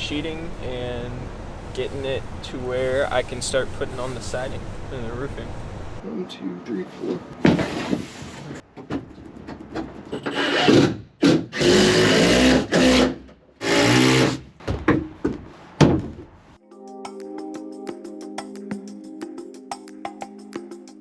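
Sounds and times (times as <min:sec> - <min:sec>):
sawing or rasping wood: 0:10.3 - 0:14.3
music: 0:16.6 - 0:21.0.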